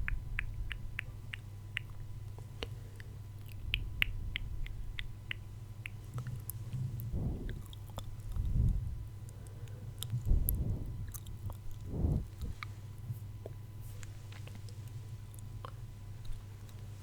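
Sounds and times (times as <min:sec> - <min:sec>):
wet mouth clicks and smacks: 0:00.0 - 0:06.6
soft low swells: 0:07.0 - 0:09.1, 0:10.2 - 0:12.6.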